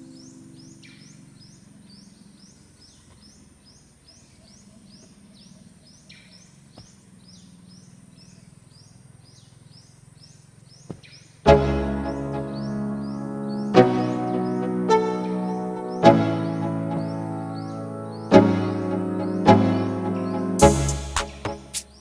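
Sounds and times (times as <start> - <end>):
high repeated chirping call: 11.5 - 22.0
loud music: 11.5 - 22.0.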